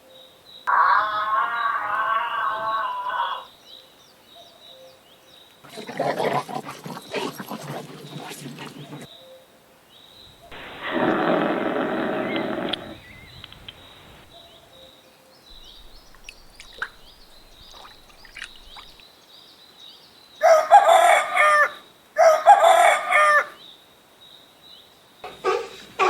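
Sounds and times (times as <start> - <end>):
rooster crowing: 0.7 - 3.5, 20.4 - 23.6
faint chirps: 5.6 - 9.3, 10.2 - 14.9, 15.5 - 19.1.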